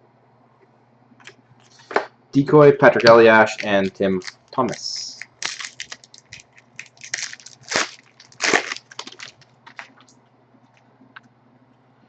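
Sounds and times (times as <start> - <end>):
wrapper crinkling and tearing: 3.0 - 10.1.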